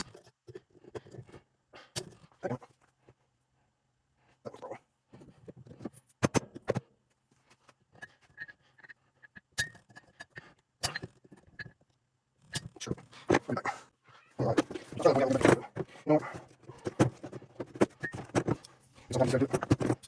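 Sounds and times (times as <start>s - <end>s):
metal parts and tools clinking: 14.4s - 20.0s.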